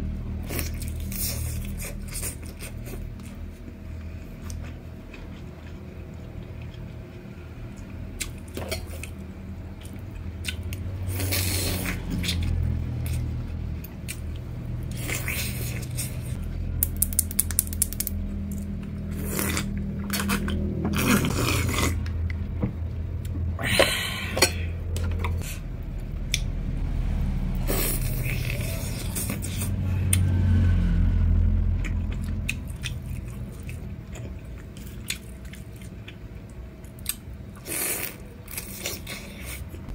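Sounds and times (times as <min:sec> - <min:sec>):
chewing food: 0:00.5 - 0:22.5, 0:31.8 - 0:39.9.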